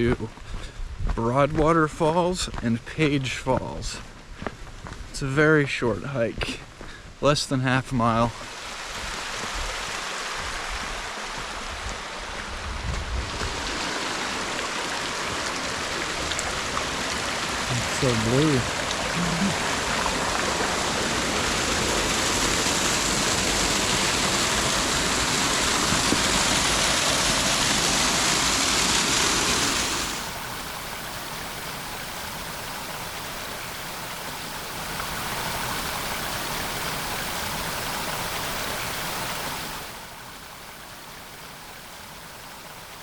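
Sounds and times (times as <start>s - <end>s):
waterfall roaring: 13.2s - 43.0s.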